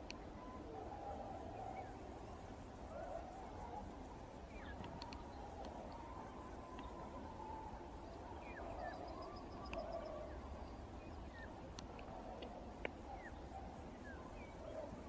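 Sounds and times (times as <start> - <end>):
songbirds whistling and trilling: 0.0 - 15.0
sharp clicks: 4.5 - 6.0, 6.6 - 7.0, 9.6 - 9.9, 11.7 - 13.1.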